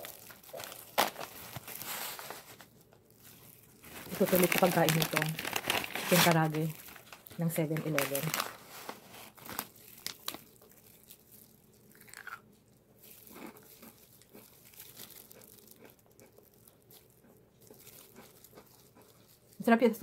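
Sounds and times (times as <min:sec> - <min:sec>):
crunching fried chicken: 0:00.0 - 0:19.8
quiet chewing: 0:09.9 - 0:19.6.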